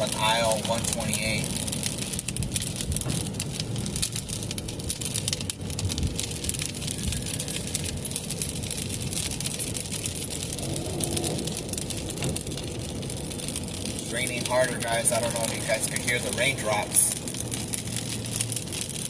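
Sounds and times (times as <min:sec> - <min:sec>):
raindrops tapping on car: 0:00.0 - 0:19.0
car road and engine noise: 0:01.1 - 0:15.4, 0:16.9 - 0:19.0.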